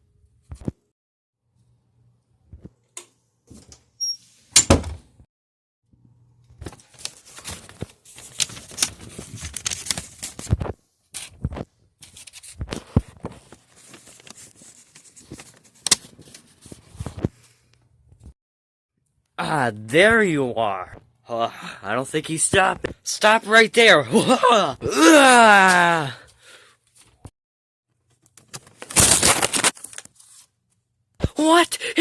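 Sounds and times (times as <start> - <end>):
loud thunk: 4.6 - 5.0.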